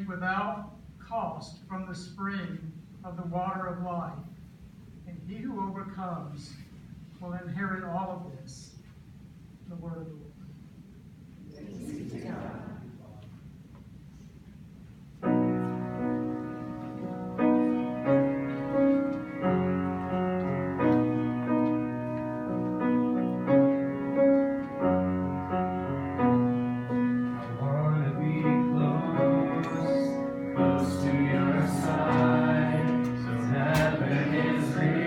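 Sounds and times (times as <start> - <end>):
slow piano chords: 15.2 - 35.0
people singing: 27.4 - 35.0.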